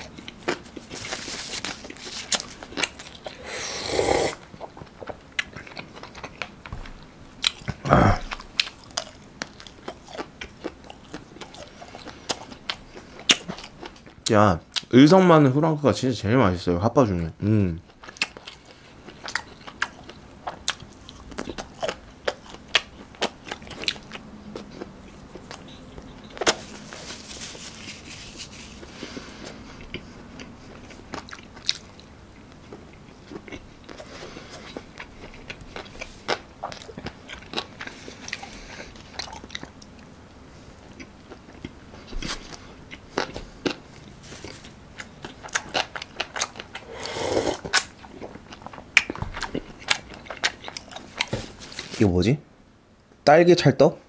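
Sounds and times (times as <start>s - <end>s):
person chewing and biting food: 0.0s - 14.9s, 17.9s - 51.9s
mouth clicks and crunches: 40.9s - 51.9s.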